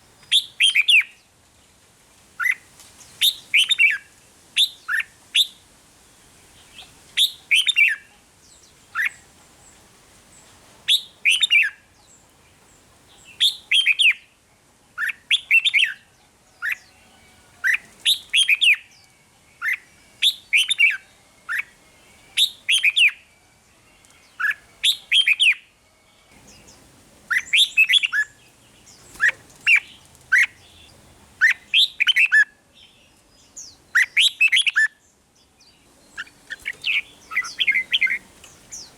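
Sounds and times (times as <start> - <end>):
bird chirping phrases: 15.0 - 38.9.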